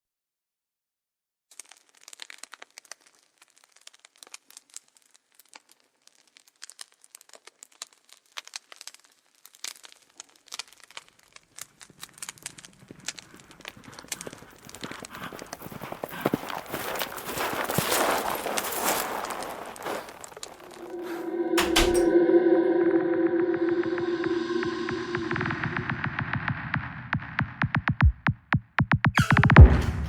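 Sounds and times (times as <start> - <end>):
campfire crackling: 1.6 - 17.8
low rumble: 20.6 - 28.1.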